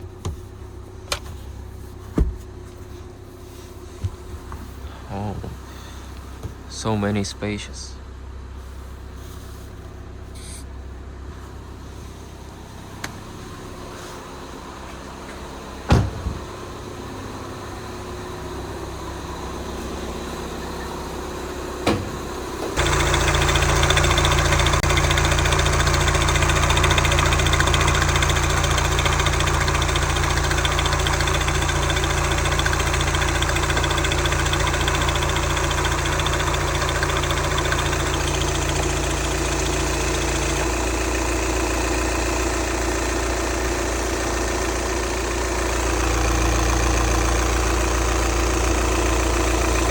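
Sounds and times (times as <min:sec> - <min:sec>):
diesel car engine idling: 0:00.0 - 0:49.9
thuds: 0:02.1 - 0:02.6, 0:15.9 - 0:16.5.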